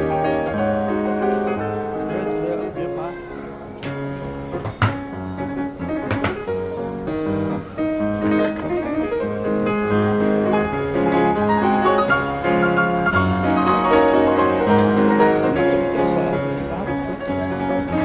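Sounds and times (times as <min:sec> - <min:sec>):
piano melody of held notes: 0:00.0 - 0:18.0.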